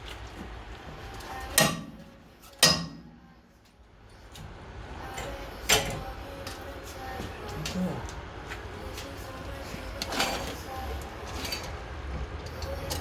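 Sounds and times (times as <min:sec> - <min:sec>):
tools clanking on metal: 0:01.5 - 0:03.2.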